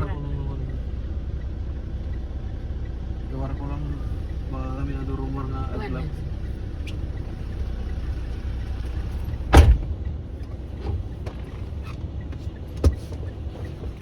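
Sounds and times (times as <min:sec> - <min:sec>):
car interior engine rumble: 0:00.0 - 0:14.0
loud thump: 0:09.4 - 0:10.1.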